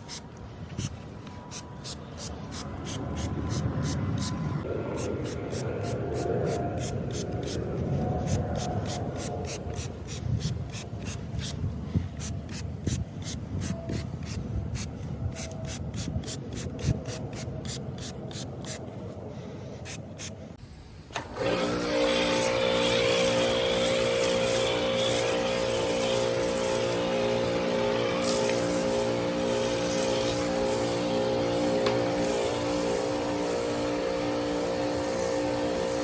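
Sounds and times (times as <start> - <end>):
sponge scrubbing car body: 22.0 - 36.0.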